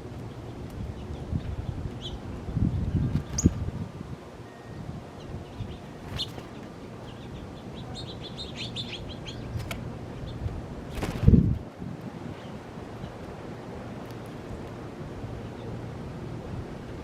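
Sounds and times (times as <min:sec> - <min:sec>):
small birds chirping: 0:00.2 - 0:03.6, 0:04.6 - 0:11.6.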